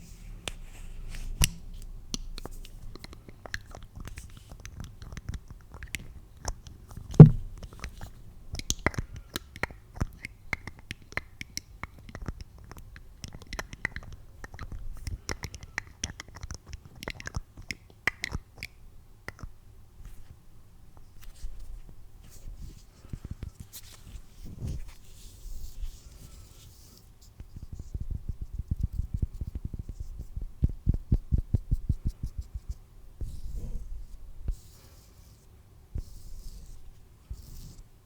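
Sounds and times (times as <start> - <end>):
small clicks and taps: 1.4 - 19.5
loud thump: 7.2 - 7.5.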